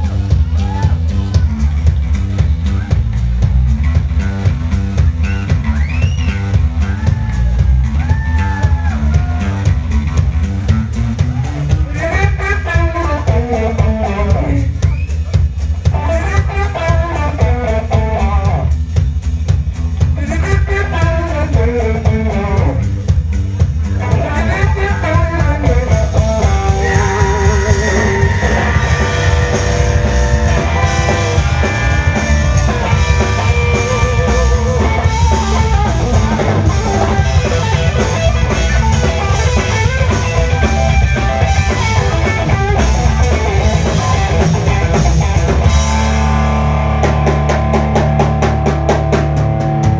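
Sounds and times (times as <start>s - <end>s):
bass: 0.0s - 49.9s
drum kit steady beat: 0.0s - 49.9s
lead guitar bending notes: 24.0s - 49.9s.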